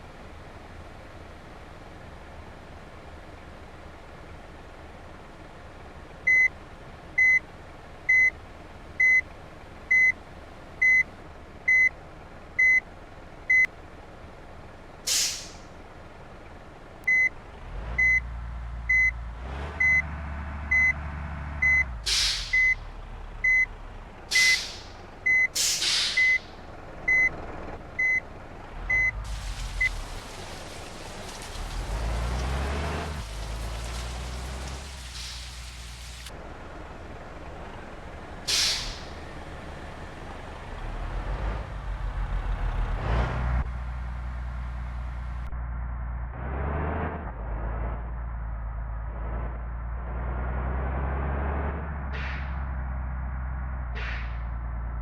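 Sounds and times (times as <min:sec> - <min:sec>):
diesel engine rumble: 0:00.0 - 0:55.0
vehicle reversing beeper: 0:06.3 - 0:06.5, 0:07.2 - 0:07.4, 0:08.1 - 0:08.4, 0:09.0 - 0:09.2, 0:09.9 - 0:10.2, 0:10.8 - 0:11.1, 0:11.7 - 0:11.9, 0:12.6 - 0:12.8, 0:13.5 - 0:13.7, 0:17.1 - 0:17.3, 0:18.0 - 0:18.3, 0:18.9 - 0:19.2, 0:19.8 - 0:20.1, 0:20.7 - 0:21.0, 0:21.6 - 0:22.8, 0:23.4 - 0:23.7, 0:24.3 - 0:26.5, 0:27.1 - 0:27.4, 0:28.0 - 0:28.2, 0:28.9 - 0:29.2
air brake hisses: 0:15.1 - 0:15.6, 0:22.0 - 0:22.8, 0:24.3 - 0:25.0, 0:25.6 - 0:26.5, 0:35.1 - 0:35.6, 0:38.5 - 0:39.3.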